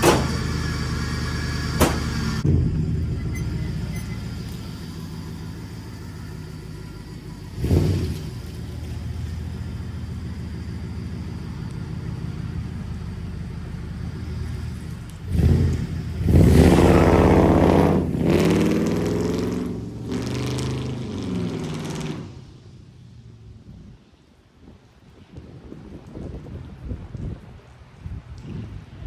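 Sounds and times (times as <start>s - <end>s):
car engine revving: 0.0s - 22.8s.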